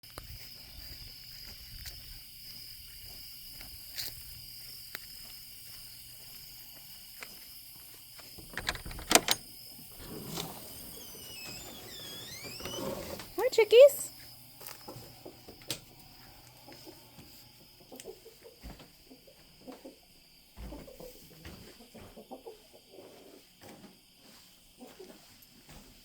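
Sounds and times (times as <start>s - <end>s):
insects trilling: 0.1s - 25.3s
sharp knocks and clicks: 8.4s - 9.4s.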